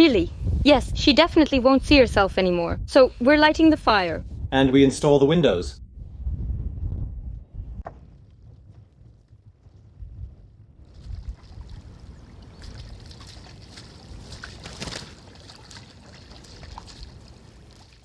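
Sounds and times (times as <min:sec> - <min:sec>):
low rumble: 0:05.7 - 0:12.4.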